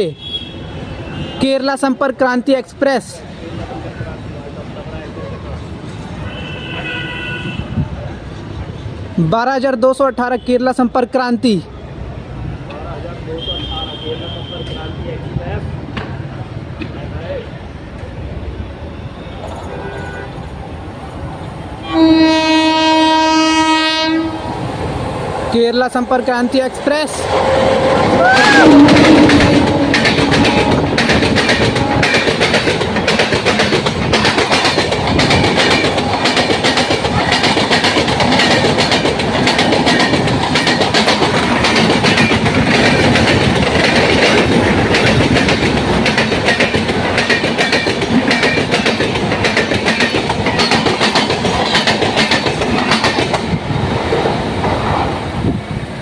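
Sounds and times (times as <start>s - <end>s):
train rushing past: 10.8s - 56.0s
wheels clacking over rails: 24.5s - 55.3s.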